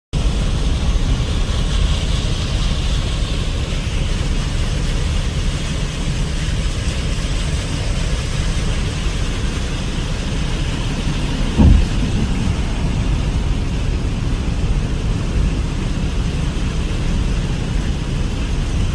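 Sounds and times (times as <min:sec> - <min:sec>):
low continuous rumble: 0:00.2 - 0:18.9
steady rain: 0:00.2 - 0:18.9
brief thump: 0:11.6 - 0:12.5.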